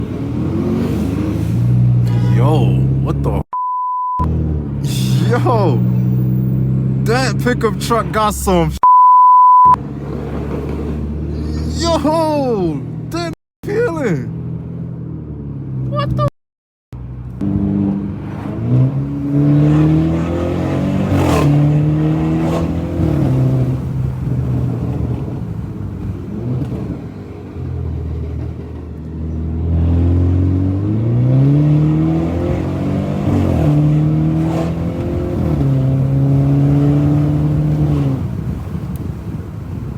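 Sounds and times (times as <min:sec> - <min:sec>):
car engine accelerating hard: 0:00.0 - 0:03.4, 0:17.0 - 0:39.8.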